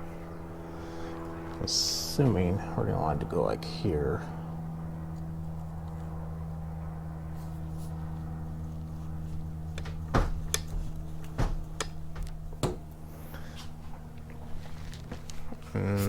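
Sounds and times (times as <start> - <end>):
low hum: 0.0 - 16.0
sharp knocks and clicks: 9.7 - 12.9.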